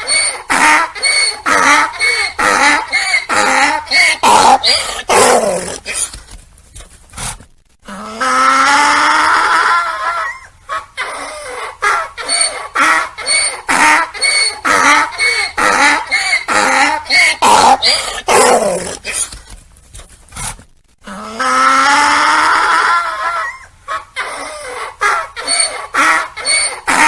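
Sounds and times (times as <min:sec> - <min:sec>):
donkey braying: 0:00.0 - 0:06.1, 0:07.9 - 0:19.4.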